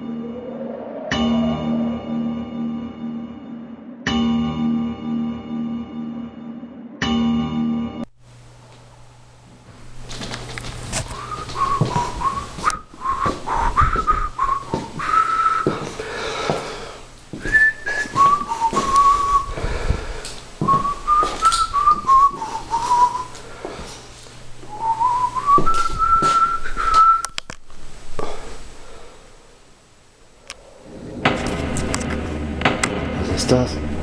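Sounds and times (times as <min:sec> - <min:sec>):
person whistling a tune: 0:11.2 - 0:15.8, 0:17.4 - 0:19.5, 0:20.7 - 0:23.3, 0:24.7 - 0:27.4.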